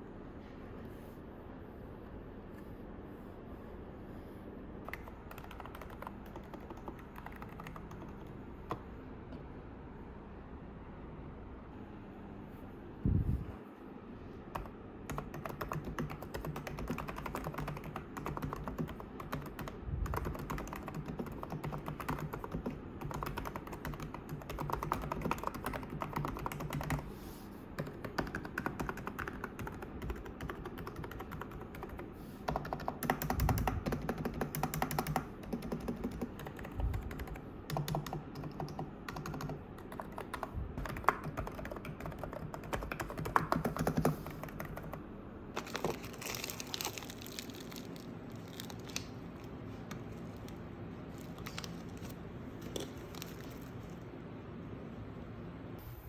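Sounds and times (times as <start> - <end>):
keyboard typing: 4.8 - 8.9, 14.5 - 27.1, 27.8 - 45.0.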